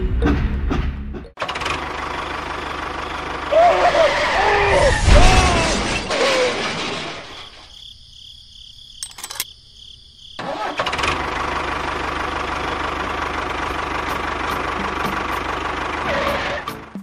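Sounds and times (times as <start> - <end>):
clicks: 9.0 - 9.5.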